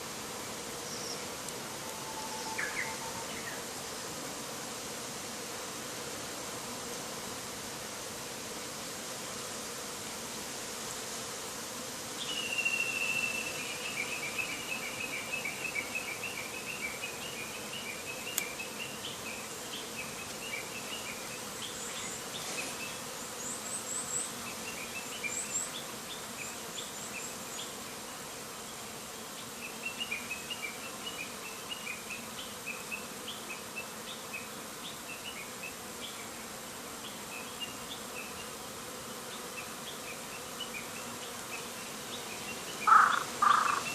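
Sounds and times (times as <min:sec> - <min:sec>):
bees buzzing: 0:00.0 - 0:43.9
bird chirping: 0:42.3 - 0:43.9.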